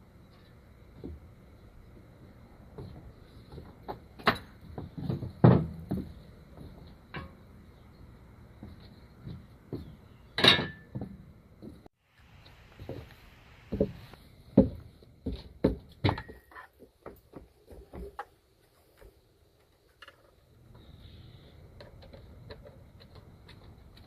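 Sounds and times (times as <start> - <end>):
tools and metal parts clinking: 10.4 - 11.0.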